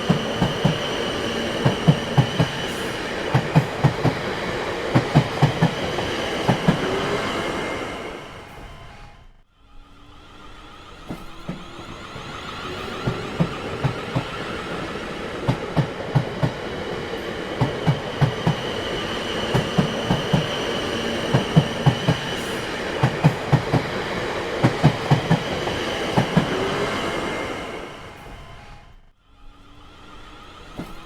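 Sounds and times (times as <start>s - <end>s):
train wheels clattering over joints: 0.0s - 7.0s, 11.0s - 26.7s.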